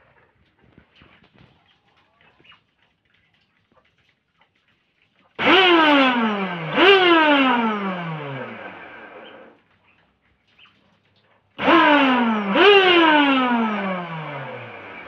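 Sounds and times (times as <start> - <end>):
vacuum cleaner motor whine: 5.4 - 9.6, 11.6 - 15.0.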